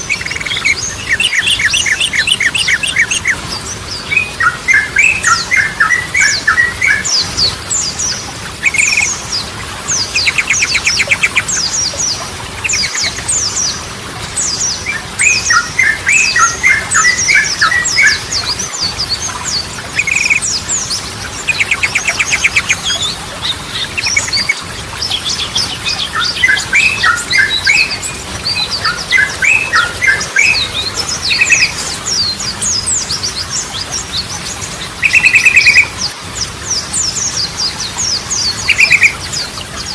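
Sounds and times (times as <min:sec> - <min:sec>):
bird rapid trill: 0:00.0 - 0:03.4, 0:08.1 - 0:09.1, 0:10.0 - 0:13.7, 0:15.2 - 0:20.8, 0:21.4 - 0:34.2, 0:34.9 - 0:36.0
high-pitched bird chirps: 0:00.0 - 0:03.4, 0:04.1 - 0:09.2, 0:10.0 - 0:13.7, 0:14.4 - 0:39.9
bird gurgling song: 0:00.0 - 0:39.9.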